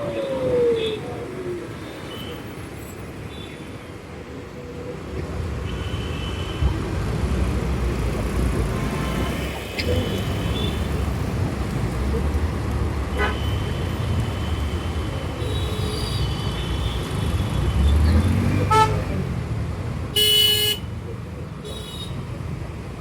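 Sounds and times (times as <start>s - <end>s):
wind and road rumble: 0.0s - 23.0s
vehicle horns honking: 13.1s - 13.7s, 18.6s - 19.1s, 20.2s - 20.9s.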